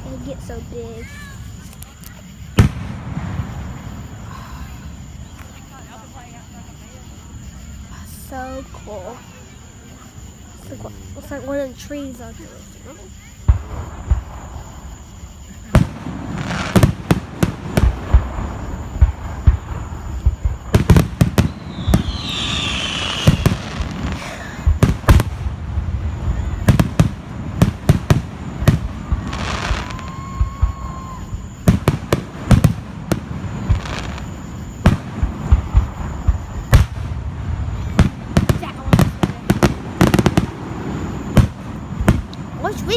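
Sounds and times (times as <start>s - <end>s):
fireworks bangs and booms: 0.0s - 42.9s
whistling rocket: 13.4s - 42.9s.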